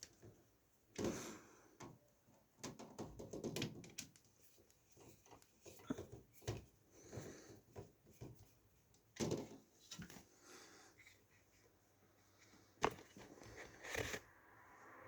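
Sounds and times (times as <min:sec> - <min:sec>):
computer parts clicking and rustling: 0:01.8 - 0:06.8.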